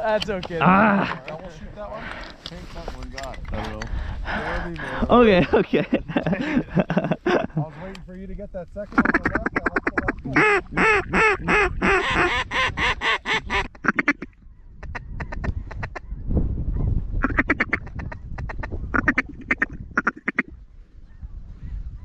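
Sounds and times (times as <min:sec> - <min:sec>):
low wind rumble: 0:00.0 - 0:22.0
duck quacking: 0:08.9 - 0:14.3.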